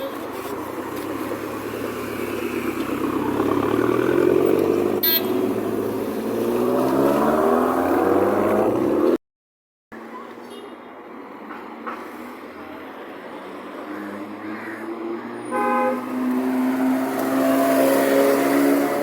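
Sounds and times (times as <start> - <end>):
street noise: 0.0 - 9.2, 9.9 - 19.0
sports car engine accelerating: 1.2 - 9.2.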